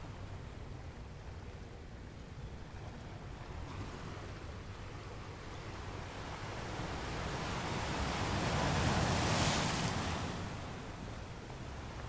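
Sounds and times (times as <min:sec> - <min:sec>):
ocean waves washing: 0:05.2 - 0:12.0.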